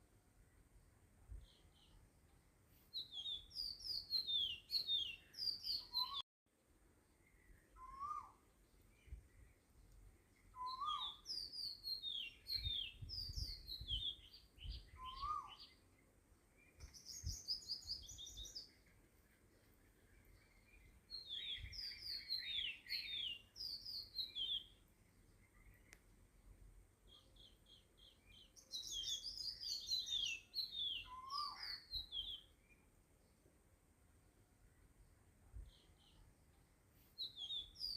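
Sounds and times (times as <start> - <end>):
small birds chirping: 0.0 - 6.2, 7.0 - 33.6, 34.6 - 37.9.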